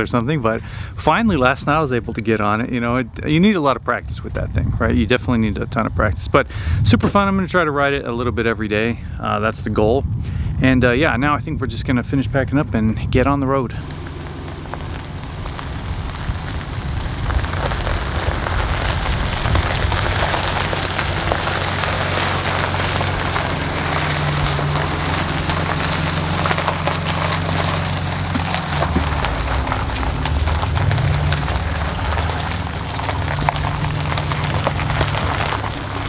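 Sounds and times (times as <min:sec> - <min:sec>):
road and tyre noise: 0:00.0 - 0:36.0
low engine drone: 0:13.8 - 0:36.0.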